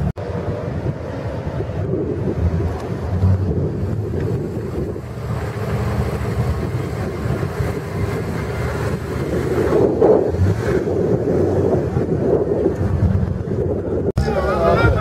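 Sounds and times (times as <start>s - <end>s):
off-road vehicle engine running: 0.0s - 15.0s
wind noise on microphone: 0.0s - 15.0s.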